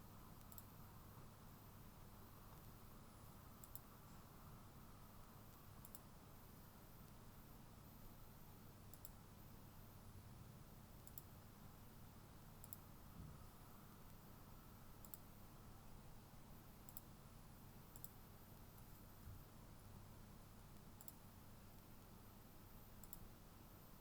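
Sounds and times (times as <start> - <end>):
computer mouse clicks: 0.4 - 0.8, 3.6 - 3.9, 5.5 - 6.1, 8.9 - 9.2, 11.0 - 11.4, 12.6 - 12.9, 15.0 - 15.3, 16.8 - 17.1, 17.9 - 18.2, 20.7 - 21.9, 23.0 - 23.3.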